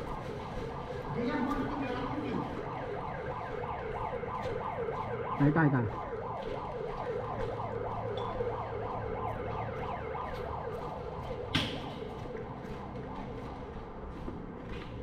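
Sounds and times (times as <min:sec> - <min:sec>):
electronic siren warbling: 0:00.9 - 0:11.9.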